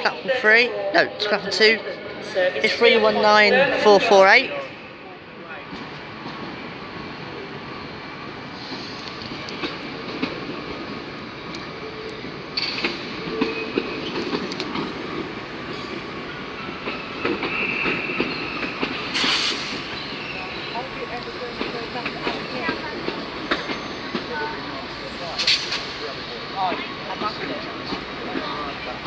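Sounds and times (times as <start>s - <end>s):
train rumbling into station: 0.0s - 29.0s
high wheel squeal: 12.6s - 26.4s
short hiss: 19.1s - 20.7s, 25.0s - 26.0s.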